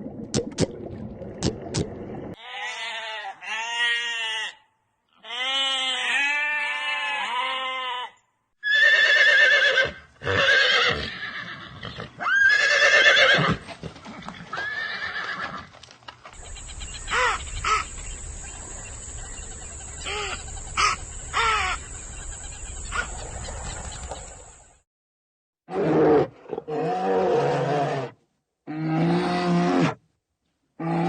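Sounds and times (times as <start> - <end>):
animal calls: 16.4 - 24.4.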